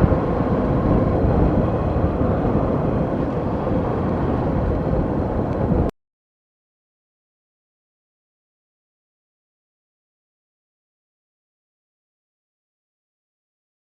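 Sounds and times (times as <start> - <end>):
vehicle rumbling along a road: 0.0 - 5.9.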